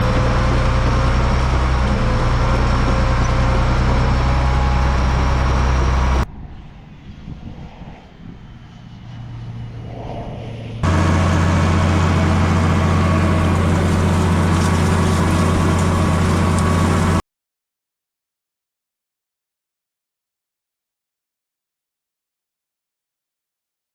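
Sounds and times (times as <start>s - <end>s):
heavy vehicle engine running: 0.0s - 6.3s, 10.4s - 17.2s.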